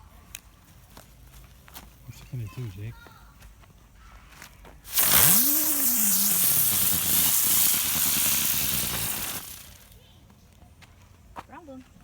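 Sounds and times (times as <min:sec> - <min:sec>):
firework spraying hiss: 0:04.9 - 0:10.0
spinning firework whir: 0:04.9 - 0:10.0.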